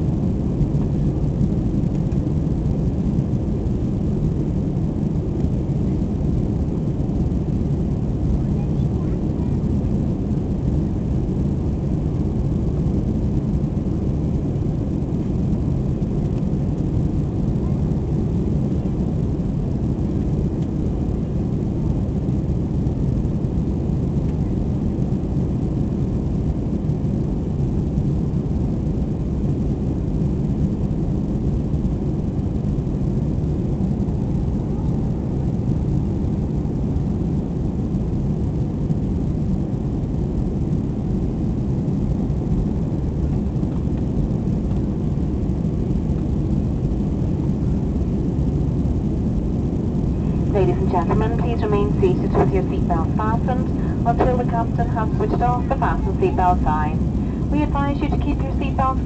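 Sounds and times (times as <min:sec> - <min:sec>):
airplane cabin engine drone: 0:00.0 - 0:59.0.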